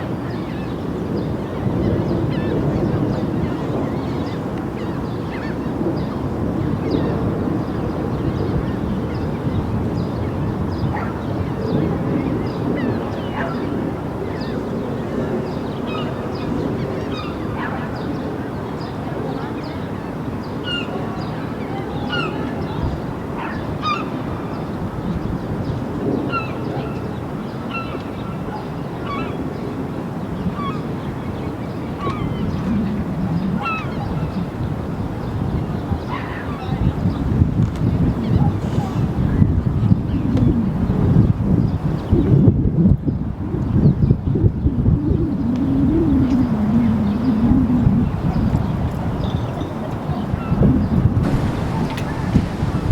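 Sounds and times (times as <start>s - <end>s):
flock of birds calling: 51.2s - 52.9s.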